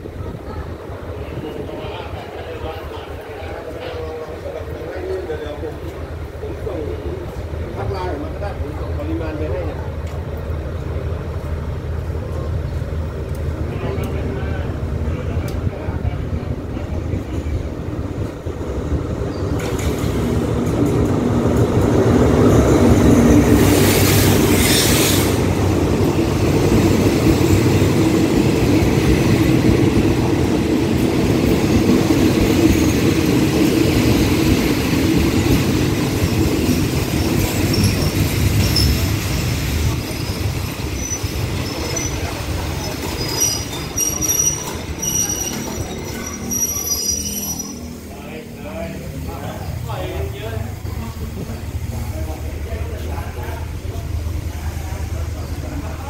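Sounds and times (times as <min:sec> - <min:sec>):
train rumbling past: 0:00.0 - 0:56.0
wheel and brake squeals: 0:40.1 - 0:48.1.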